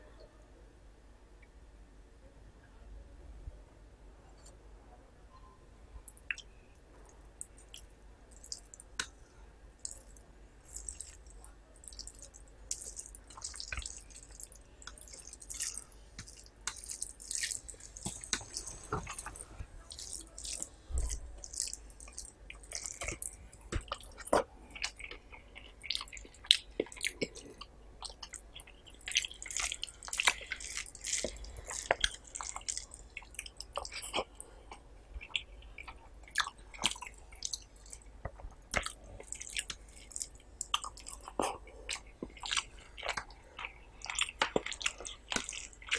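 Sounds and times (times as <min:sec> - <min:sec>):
wet eating clicks and smacks: 0:09.8 - 0:45.9.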